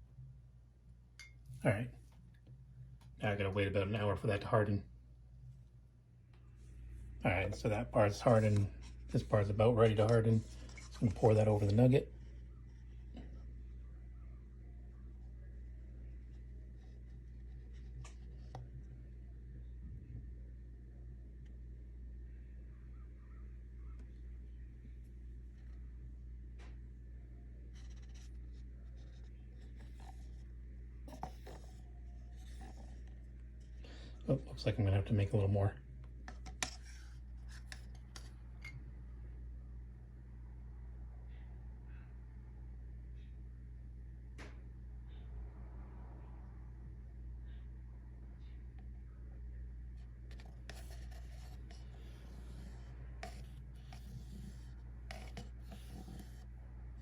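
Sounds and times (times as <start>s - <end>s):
steady low hum: 0.0s - 57.0s
faint scraping and rubbing: 6.4s - 19.0s, 27.4s - 35.6s, 36.3s - 38.7s, 49.9s - 57.0s.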